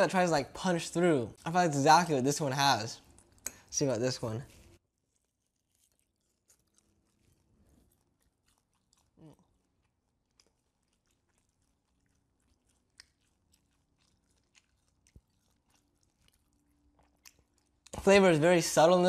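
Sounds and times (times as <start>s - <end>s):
close-up chewing: 1.4s - 3.8s, 4.6s - 18.2s
wet mouth clicks: 3.0s - 3.7s, 8.0s - 18.0s.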